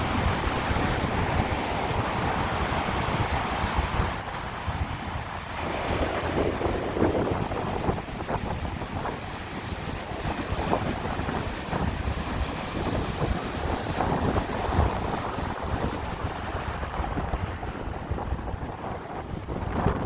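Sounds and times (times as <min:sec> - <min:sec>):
ocean surf washing ashore: 0:00.0 - 0:20.0
wind buffeting microphone: 0:00.0 - 0:20.0.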